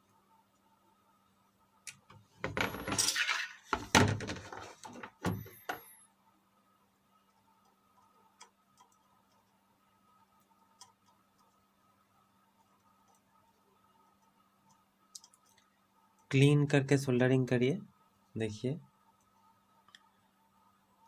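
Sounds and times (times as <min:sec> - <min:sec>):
clattering and rustling: 0:02.4 - 0:05.5.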